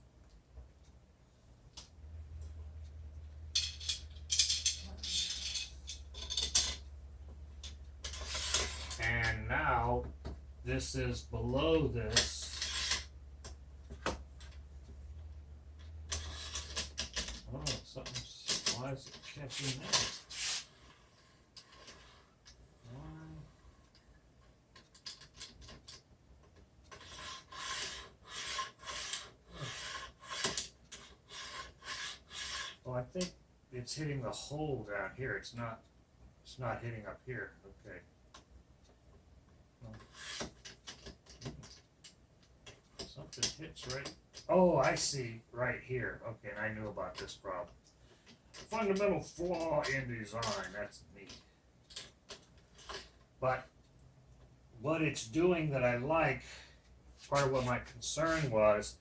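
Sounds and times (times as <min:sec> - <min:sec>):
low steady hum: 0:00.0 - 0:59.0
metal hardware rattling and scraping: 0:03.3 - 0:10.0, 0:10.7 - 0:14.6, 0:15.8 - 0:21.0, 0:39.8 - 0:45.2, 0:45.9 - 0:53.6.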